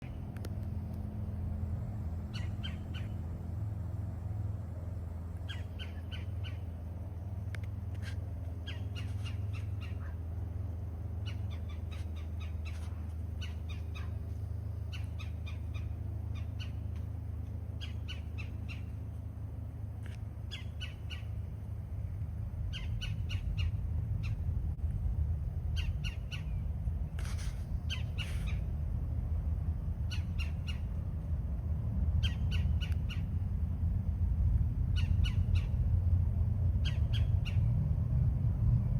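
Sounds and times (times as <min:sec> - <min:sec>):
steady low rumble: 0:00.0 - 0:38.9
birds squawking: 0:02.2 - 0:03.4, 0:05.4 - 0:06.8, 0:08.0 - 0:10.3, 0:11.2 - 0:14.3, 0:27.3 - 0:28.6.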